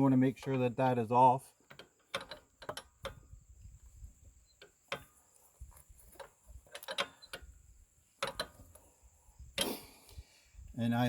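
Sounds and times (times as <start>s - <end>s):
hands clicking on metal parts: 1.7s - 3.2s.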